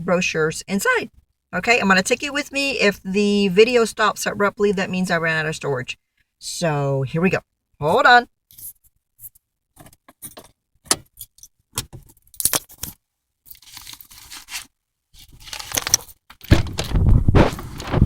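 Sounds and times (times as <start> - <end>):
clicks and rattles of handling: 8.5 - 18.0
rushing noise with low thumps: 16.6 - 18.0.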